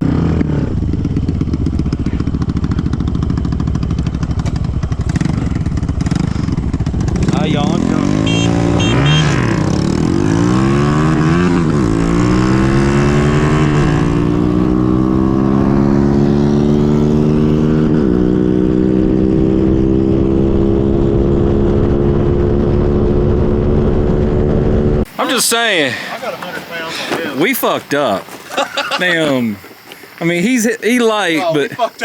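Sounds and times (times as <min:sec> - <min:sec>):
mini bike engine accelerating: 0:00.0 - 0:21.3
wind rumble: 0:08.4 - 0:25.1.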